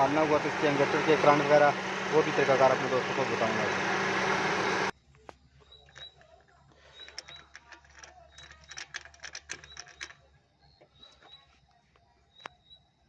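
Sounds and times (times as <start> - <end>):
car engine running: 0.0 - 4.9.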